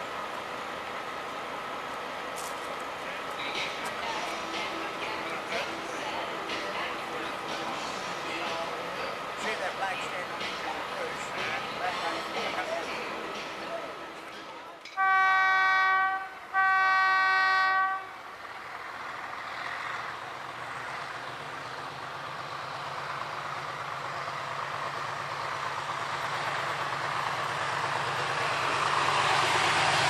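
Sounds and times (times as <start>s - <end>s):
locomotive engine and rail noise: 0.0s - 30.0s
locomotive horn blast: 14.9s - 18.2s.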